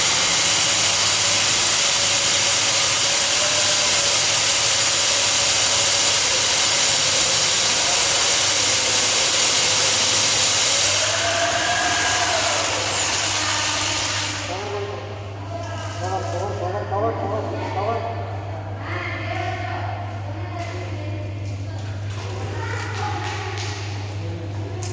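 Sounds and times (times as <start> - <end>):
core drill cutting masonry: 0.0 - 14.6.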